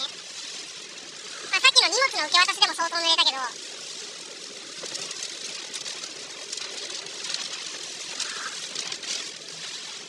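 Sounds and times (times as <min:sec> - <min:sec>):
rain and tyres on wet road: 0:00.0 - 0:10.0
faint ticks: 0:04.8 - 0:09.4.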